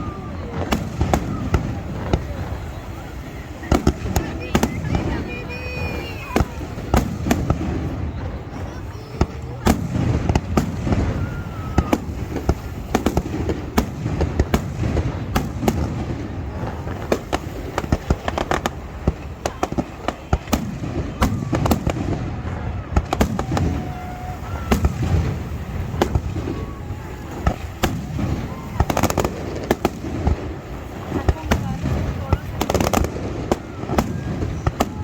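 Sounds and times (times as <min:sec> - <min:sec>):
firework whistle: 0:00.0 - 0:35.0
fireworks bangs and crackling: 0:00.0 - 0:35.0.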